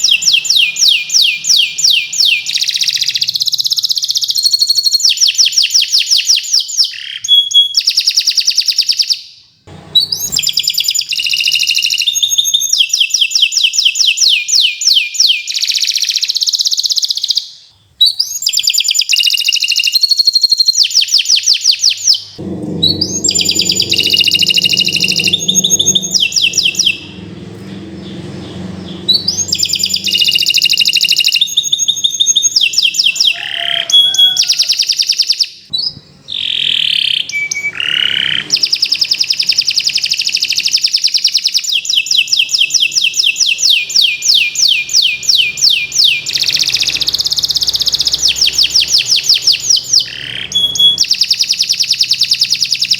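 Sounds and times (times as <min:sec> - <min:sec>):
canary singing trills: 0:00.0 - 0:52.9
low rumble: 0:22.4 - 0:31.1.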